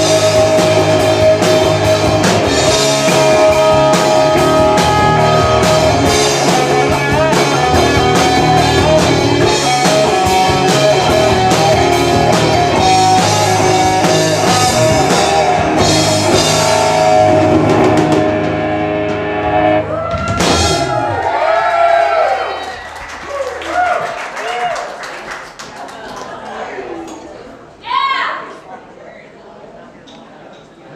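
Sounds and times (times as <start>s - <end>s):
electric guitar: 0.0s - 21.2s
drum kit beat: 0.0s - 21.3s.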